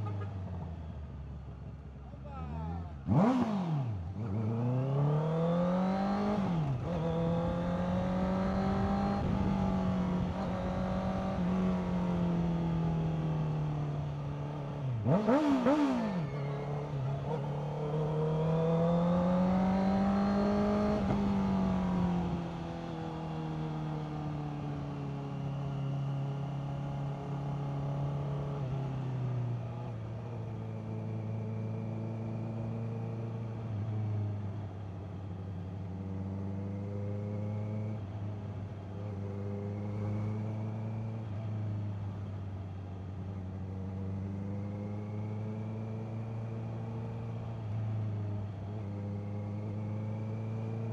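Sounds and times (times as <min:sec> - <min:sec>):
motorcycle engine accelerating: 0:02.7 - 0:34.7, 0:35.6 - 0:42.2.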